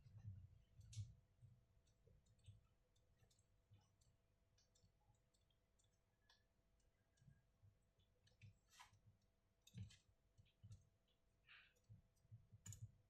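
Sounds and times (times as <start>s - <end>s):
small hard parts clicking: 11.7s - 13.0s.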